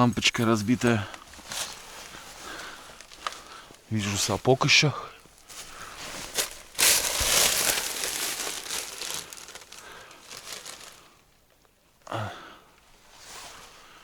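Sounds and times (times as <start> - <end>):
junk crumpling and rustling: 1.0 - 3.7, 5.4 - 11.2.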